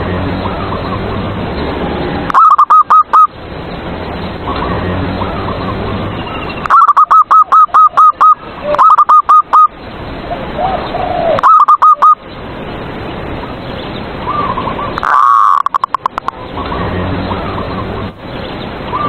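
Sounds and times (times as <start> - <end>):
doves cooing: 2.2 - 3.3, 6.6 - 9.7, 10.3 - 12.2, 14.3 - 18.0.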